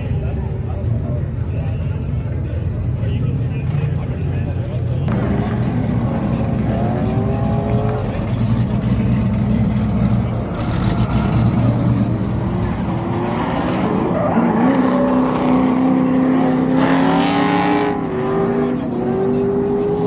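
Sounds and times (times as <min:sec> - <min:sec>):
car engine revving: 0:05.1 - 0:20.0.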